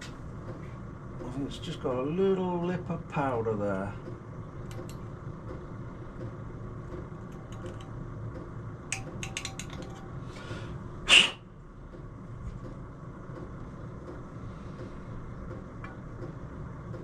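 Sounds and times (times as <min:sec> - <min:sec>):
steady low hum: 0:00.0 - 0:17.0
knife scraping metal parts: 0:09.0 - 0:10.1
loud sharp sound: 0:11.1 - 0:11.4.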